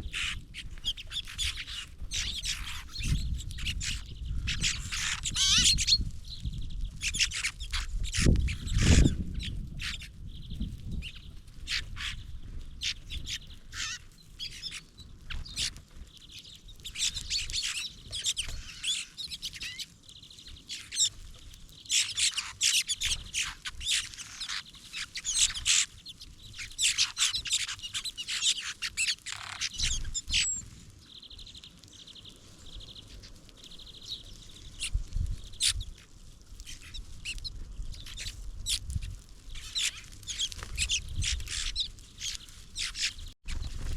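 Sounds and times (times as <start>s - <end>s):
songbirds chirping: 0.0s - 43.9s
rattling bird calls: 13.2s - 14.8s, 16.9s - 19.9s.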